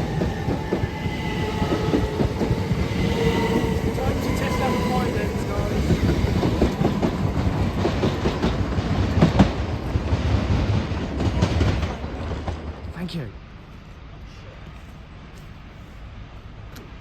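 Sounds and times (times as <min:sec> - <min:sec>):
train wheels clattering over rails: 0:00.0 - 0:13.0.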